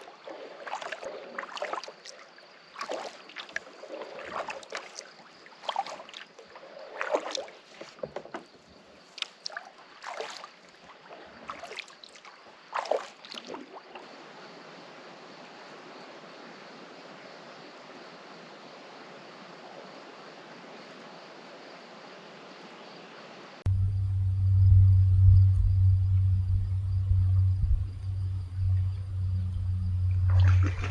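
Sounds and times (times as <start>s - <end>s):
paddle strokes splashing in water: 0.0s - 14.1s, 26.9s - 30.9s.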